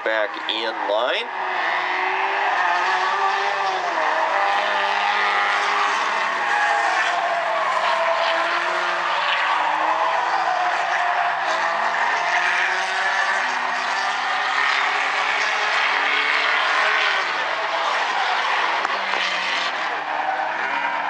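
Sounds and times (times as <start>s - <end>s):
race car engines: 0.0s - 21.0s.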